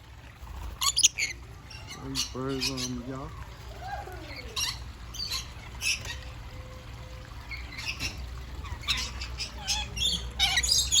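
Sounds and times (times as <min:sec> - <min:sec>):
parrots screeching: 0:00.8 - 0:03.0, 0:07.5 - 0:11.0.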